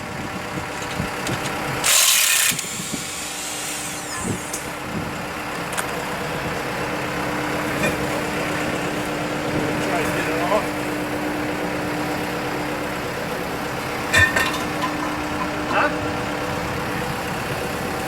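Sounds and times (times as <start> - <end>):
engine running: 0.0 - 18.0
loud hiss: 1.9 - 4.6.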